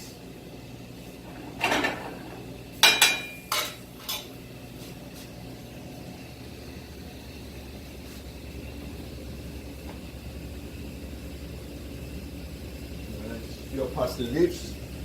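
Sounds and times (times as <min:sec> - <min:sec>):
utensils clinking against dishes: 0:02.8 - 0:04.3.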